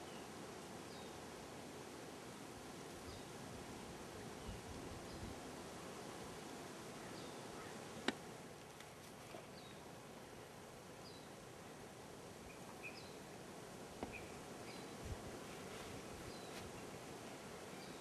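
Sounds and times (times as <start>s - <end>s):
small birds chirping: 12.5s - 13.3s, 14.0s - 15.1s.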